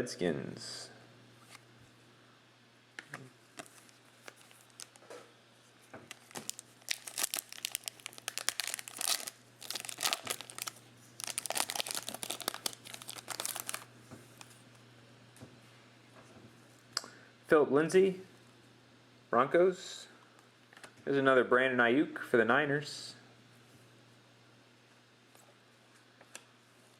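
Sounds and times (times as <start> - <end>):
plastic wrappers crinkling: 3.5 - 5.1, 6.1 - 14.6
card packs being torn open: 3.6 - 5.0, 6.1 - 14.5.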